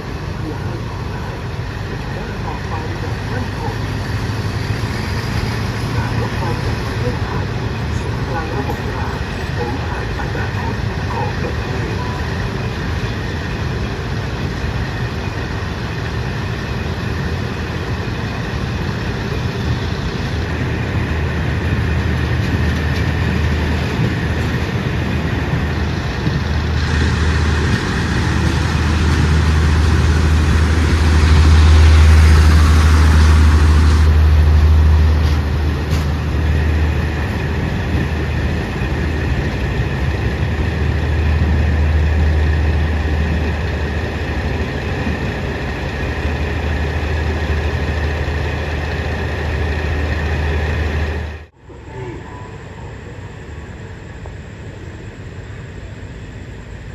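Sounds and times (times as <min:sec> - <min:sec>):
diesel train engine hum: 0:00.0 - 0:56.9
rushing rail noise: 0:00.0 - 0:56.9.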